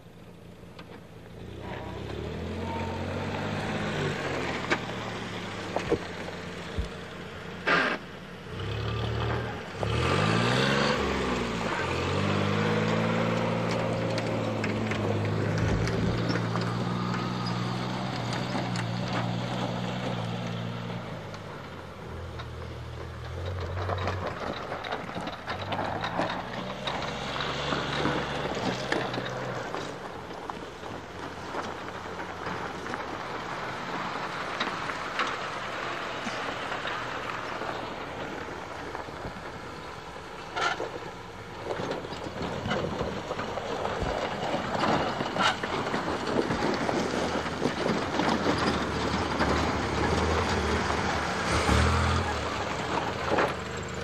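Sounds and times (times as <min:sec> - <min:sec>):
engine revving: 0:01.4 - 0:07.0, 0:07.6 - 0:21.6, 0:22.2 - 0:30.0, 0:46.6 - 0:54.0.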